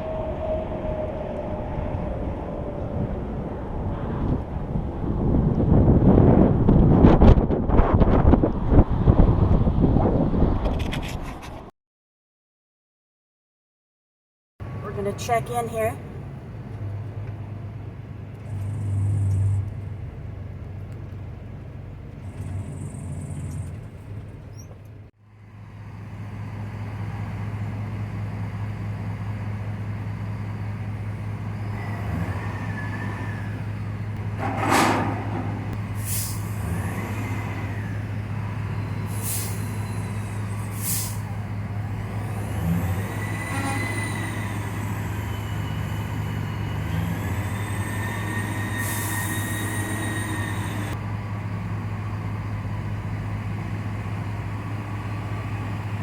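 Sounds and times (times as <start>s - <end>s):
diesel truck engine running: 14.6s - 56.0s
air brake hisses: 35.9s - 38.0s, 38.8s - 41.4s, 47.1s - 51.0s
high squealing tones: 41.9s - 51.0s.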